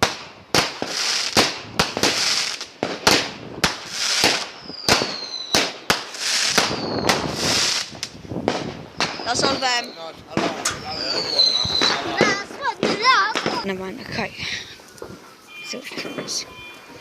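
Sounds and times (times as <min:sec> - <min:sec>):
fireworks hissing: 0:00.0 - 0:15.5
fireworks banging: 0:00.0 - 0:17.0
falling firework whistles: 0:00.1 - 0:12.6.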